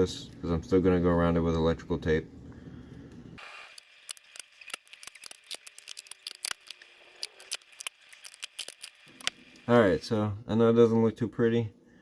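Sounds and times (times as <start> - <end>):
sharp crackling clicks: 3.7 - 9.7.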